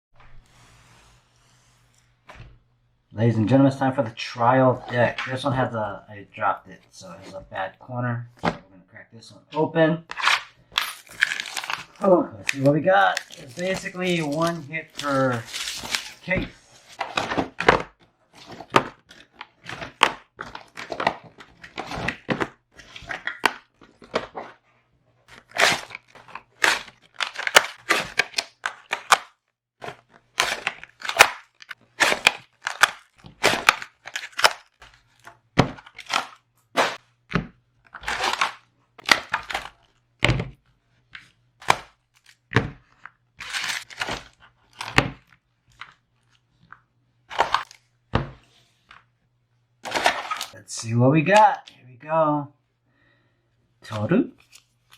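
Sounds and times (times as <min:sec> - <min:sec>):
packaging crackling and tearing: 0:10.2 - 0:17.2, 0:25.3 - 0:37.0, 0:37.9 - 0:39.9, 0:43.4 - 0:45.0.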